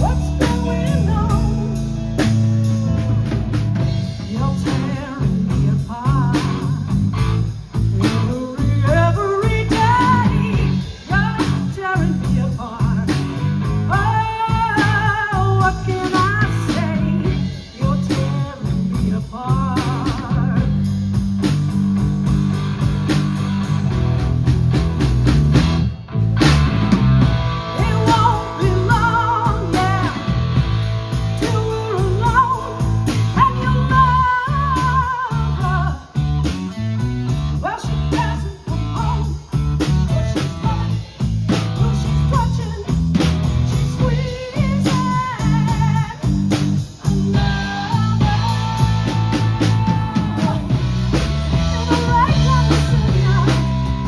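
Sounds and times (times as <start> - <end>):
bending lead guitar melody: 0.0 - 54.0
live blues-rock band: 0.0 - 54.0.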